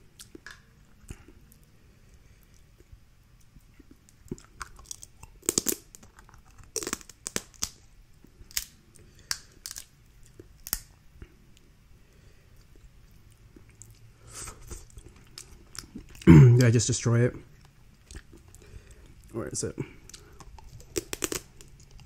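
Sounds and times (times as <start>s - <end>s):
shellfish shells cracking: 4.3s - 10.9s, 20.0s - 22.0s.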